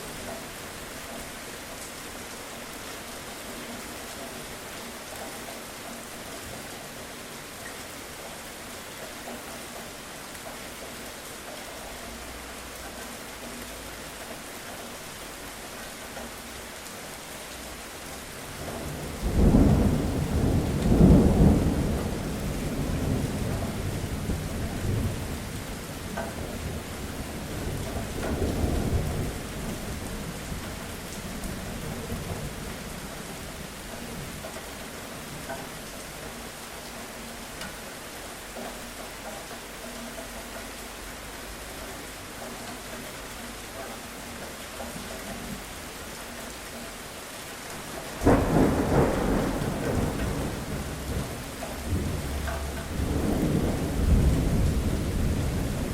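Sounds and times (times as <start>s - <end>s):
steady rain: 0.0s - 55.9s
thunder rumbling: 18.5s - 25.9s, 47.8s - 55.9s.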